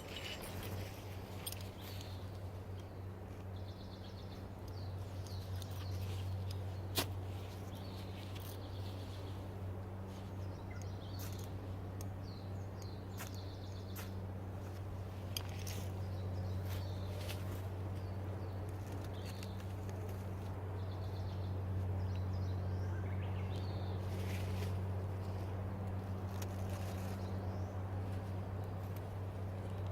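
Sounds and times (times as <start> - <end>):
small birds chirping: 0.0 - 29.9.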